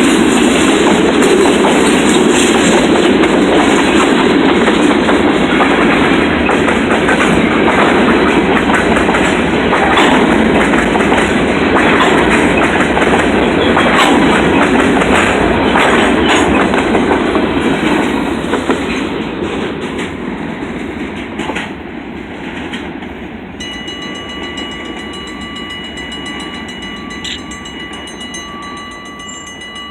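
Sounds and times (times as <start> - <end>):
freight train cars rolling: 0.0 - 29.9
wheels clacking over rail joints: 0.0 - 29.9
steady ringing tone: 23.6 - 29.9.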